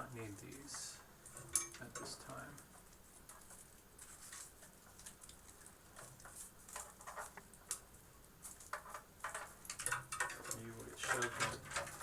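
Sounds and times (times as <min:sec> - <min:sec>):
cables rustling and clicking: 0:00.0 - 0:12.0.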